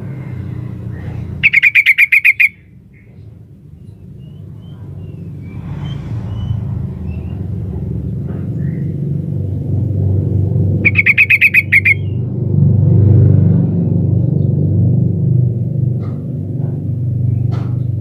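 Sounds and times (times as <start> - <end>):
bird chattering call: 1.0 - 3.2, 10.8 - 12.2.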